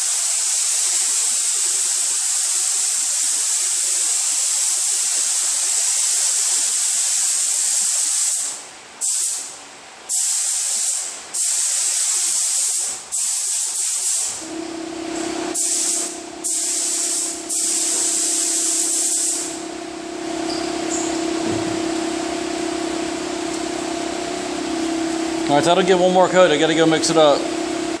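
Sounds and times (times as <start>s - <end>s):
paint spray gun hissing: 0.0s - 9.5s, 10.1s - 25.6s
steady low hum: 14.4s - 28.0s.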